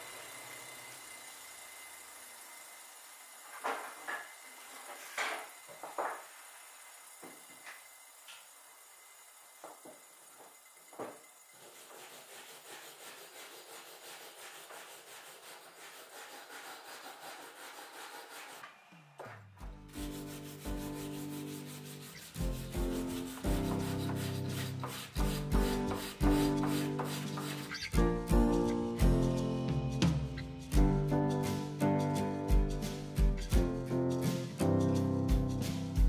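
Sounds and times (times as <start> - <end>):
rag rubbing wooden handle: 11.6 - 18.6, 20.0 - 28.0.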